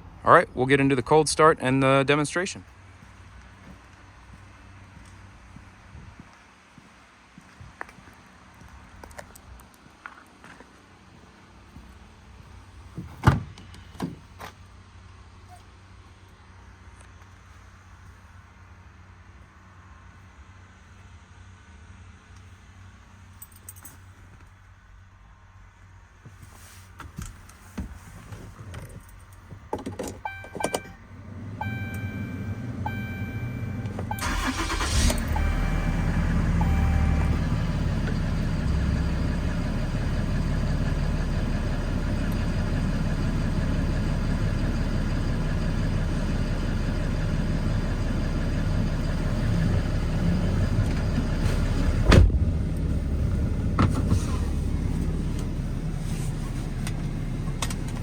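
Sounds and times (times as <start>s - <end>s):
diesel engine cranking and idling: 29.8s - 58.0s
beeping tones: 30.3s - 37.9s.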